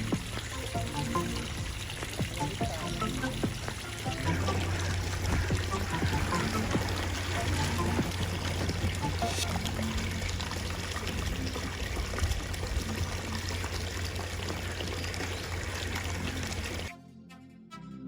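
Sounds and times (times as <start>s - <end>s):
background music with plucked notes: 0.0s - 14.5s
running water rushing: 0.0s - 16.9s.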